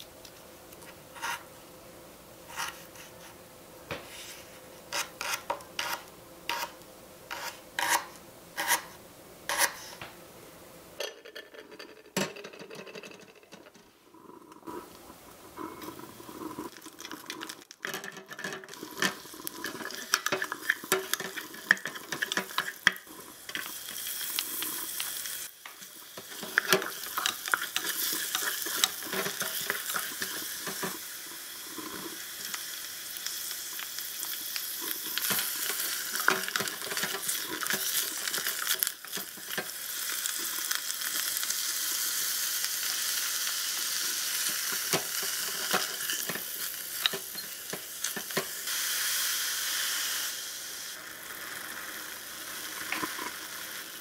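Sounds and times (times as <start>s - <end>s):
mushrooms sizzling in a pot: 14.1s - 54.0s.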